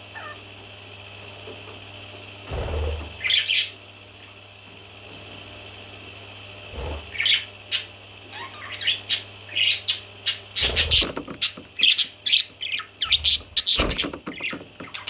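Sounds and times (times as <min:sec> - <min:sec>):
baby parrots chirping: 0:07.1 - 0:15.0.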